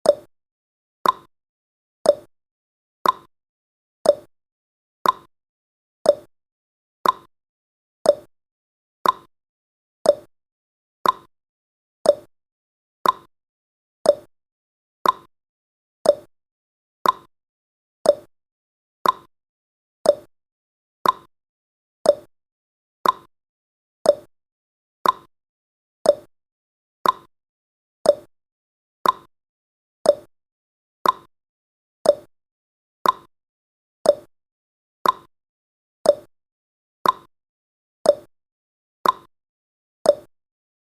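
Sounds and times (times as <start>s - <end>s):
clock tick-tock: 0.0s - 0.3s, 1.0s - 1.3s, 2.0s - 2.3s, 3.0s - 3.3s, 4.0s - 4.3s, 5.0s - 5.3s, 6.0s - 6.3s, 7.0s - 7.3s, 8.0s - 8.3s, 9.0s - 9.3s, 10.0s - 10.3s, 11.0s - 11.3s, 12.0s - 12.3s, 13.0s - 13.3s, 14.0s - 14.3s, 15.0s - 15.3s, 16.0s - 16.3s, 17.0s - 17.3s, 18.0s - 18.3s, 19.0s - 19.3s, 20.0s - 20.3s, 21.0s - 21.3s, 22.0s - 22.3s, 23.0s - 23.3s, 24.0s - 24.3s, 25.0s - 25.3s, 26.0s - 26.3s, 27.0s - 27.3s, 28.0s - 28.3s, 29.0s - 29.3s, 30.0s - 30.3s, 31.0s - 31.3s, 32.0s - 32.3s, 33.0s - 33.3s, 34.0s - 34.3s, 35.0s - 35.3s, 36.0s - 36.3s, 37.0s - 37.3s, 38.0s - 38.3s, 39.0s - 39.3s, 40.0s - 40.4s.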